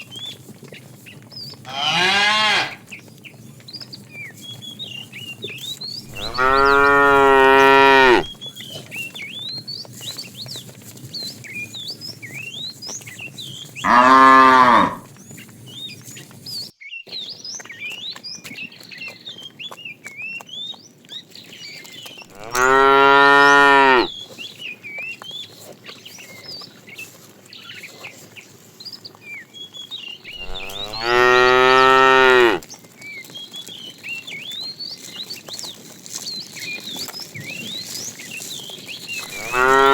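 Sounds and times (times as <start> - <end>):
cow mooing: 1.7 - 2.8, 6.1 - 8.4, 13.9 - 15.1, 22.3 - 24.1, 30.4 - 32.6, 39.3 - 39.9.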